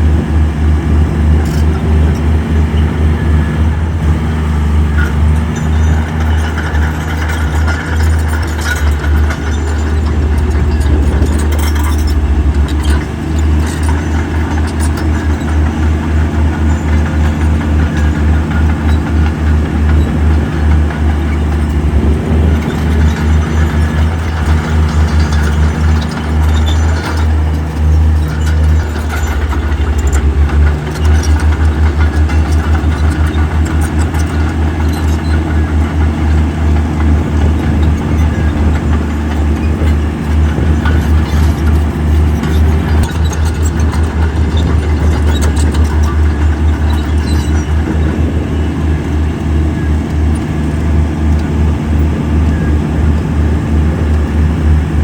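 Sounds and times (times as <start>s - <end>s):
diesel machinery throbbing: 0.0s - 55.0s
short metal clanks: 5.0s - 48.4s.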